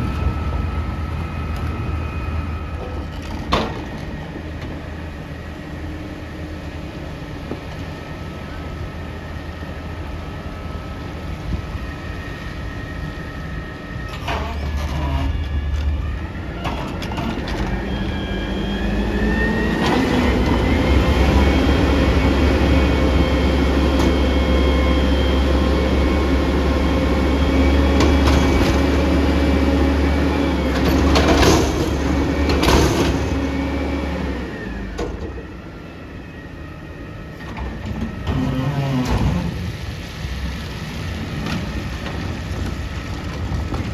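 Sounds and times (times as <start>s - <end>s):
garbage truck engine revving: 8.4s - 35.9s, 37.0s - 43.9s.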